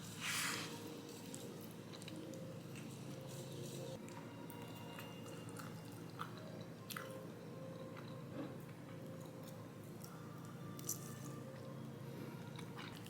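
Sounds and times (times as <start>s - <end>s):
person chewing food: 4.9s - 8.2s, 12.5s - 13.0s.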